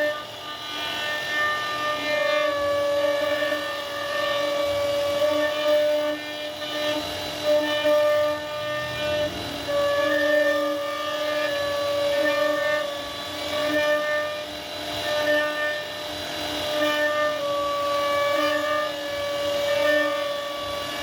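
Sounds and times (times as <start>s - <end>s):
bit cutting wood: 0.0s - 21.0s
router spindle high whine: 0.0s - 21.0s.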